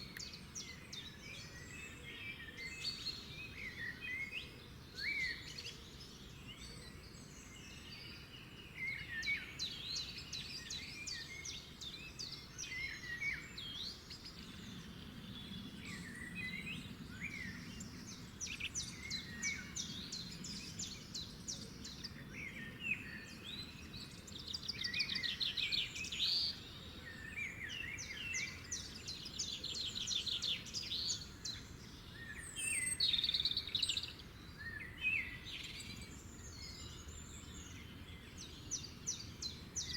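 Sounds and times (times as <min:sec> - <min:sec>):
low steady background hiss: 0:00.0 - 0:39.9
songbirds singing: 0:00.0 - 0:39.9.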